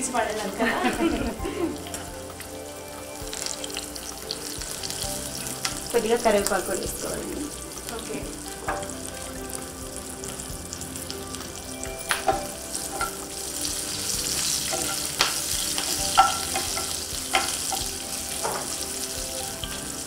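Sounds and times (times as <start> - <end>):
food sizzling in hot oil: 0.0 - 20.0
spoon knocking against pan: 14.7 - 18.8.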